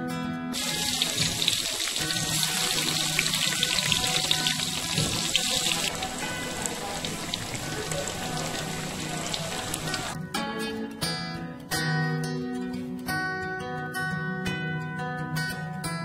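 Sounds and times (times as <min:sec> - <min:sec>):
faint background music: 0:00.0 - 0:16.0
tempeh sizzling in oil: 0:00.6 - 0:10.2.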